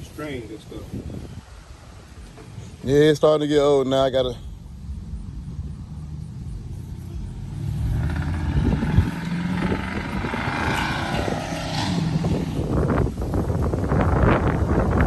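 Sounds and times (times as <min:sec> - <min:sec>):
vehicle engine running: 0:03.6 - 0:14.8.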